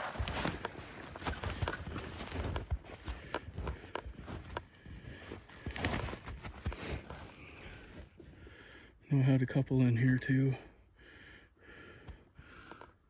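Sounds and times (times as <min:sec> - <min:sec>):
footsteps in snow: 0:00.0 - 0:08.3.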